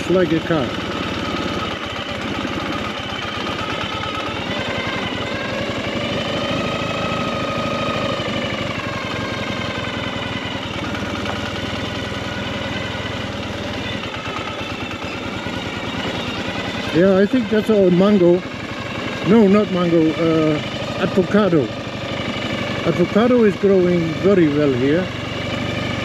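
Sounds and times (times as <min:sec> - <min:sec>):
motorcycle engine chugging: 0:00.0 - 0:26.0.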